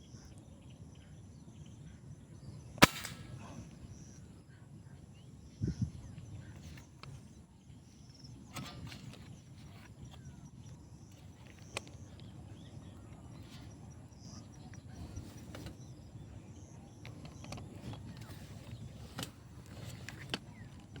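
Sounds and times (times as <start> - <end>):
faint high chirping: 0.0 - 21.0
sharp clicks: 2.8 - 3.4.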